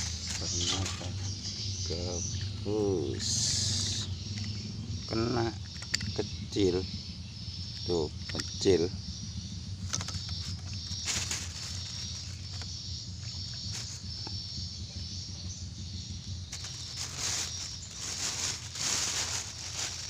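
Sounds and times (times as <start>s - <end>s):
insects trilling: 0.0s - 20.0s
steady low rumble: 0.0s - 20.0s
rustling noise bursts: 16.6s - 20.0s.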